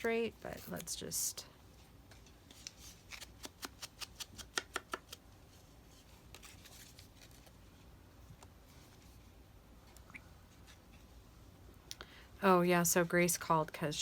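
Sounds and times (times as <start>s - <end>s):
soft paper rustle: 5.5s - 9.4s.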